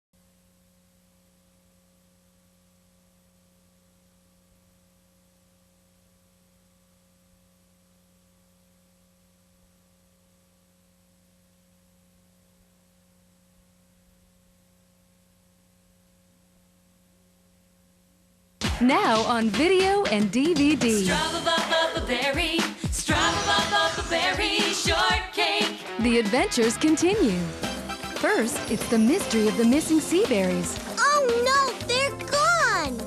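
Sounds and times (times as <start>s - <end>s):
faint hum with hiss: 0.2s - 25.6s.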